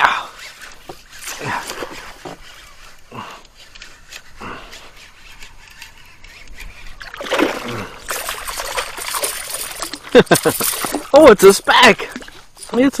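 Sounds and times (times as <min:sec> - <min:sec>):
water splashing beside kayak: 0:04.8 - 0:12.9.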